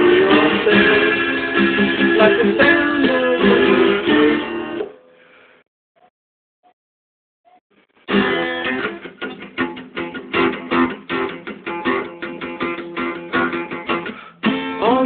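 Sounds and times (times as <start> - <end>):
guitar strumming: 0.0 - 4.9, 8.1 - 15.0.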